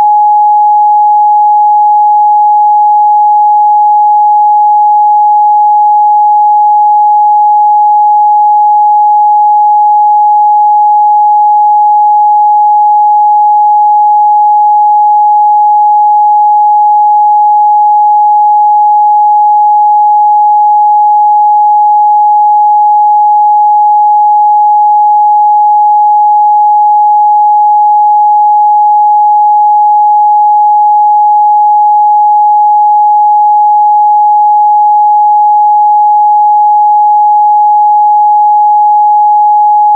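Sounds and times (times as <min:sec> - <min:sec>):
sine test tone: 0:00.0 - 0:39.9.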